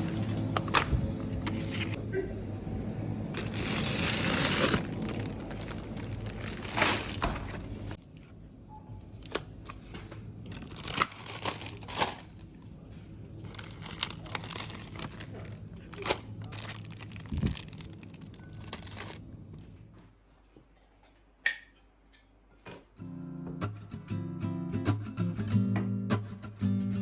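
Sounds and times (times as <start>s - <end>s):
paper or plastic crinkling: 0.0s - 2.0s, 3.4s - 8.4s, 10.5s - 12.5s, 13.4s - 19.2s.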